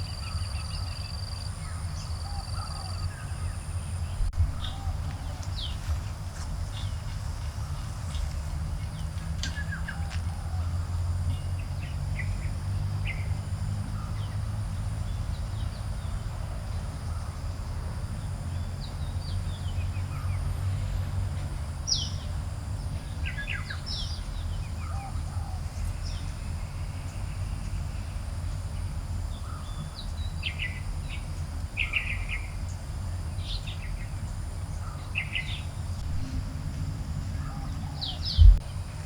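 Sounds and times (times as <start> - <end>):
birds chirping: 0.0 - 13.3, 33.4 - 39.0
low steady rumble: 0.0 - 39.0.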